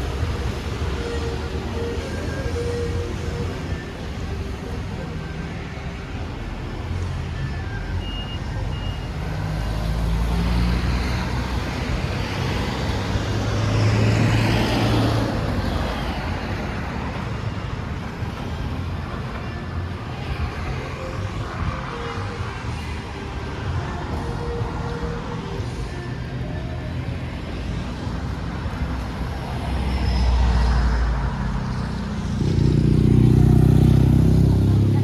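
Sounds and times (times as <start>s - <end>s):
traffic noise: 0.0s - 35.0s
vehicle passing: 29.0s - 35.0s.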